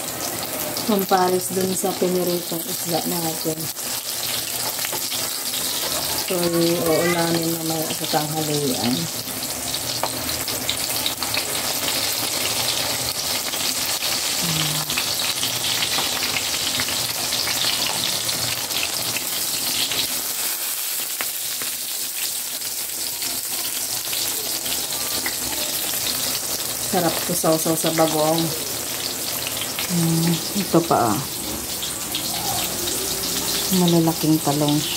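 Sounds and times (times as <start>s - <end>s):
slices frying in hot oil: 0.0s - 34.9s.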